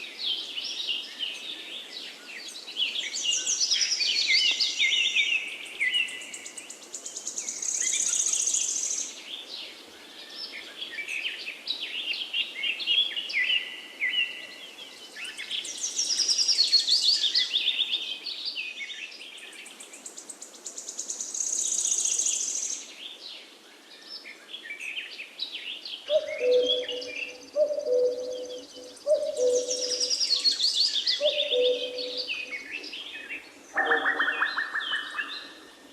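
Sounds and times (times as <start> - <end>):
songbird singing trills: 24.0 - 35.9.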